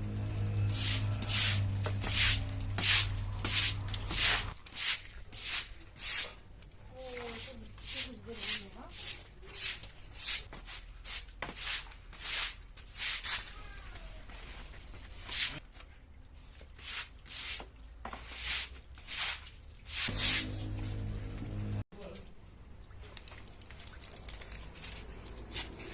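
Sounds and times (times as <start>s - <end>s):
low steady hum: 0.0s - 4.6s, 20.1s - 21.8s.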